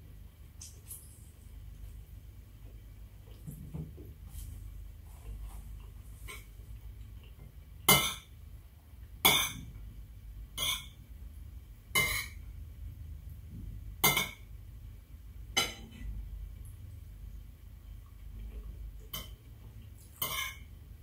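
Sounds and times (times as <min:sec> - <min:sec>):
cutlery clinking on a plate: 0:20.2 - 0:20.6.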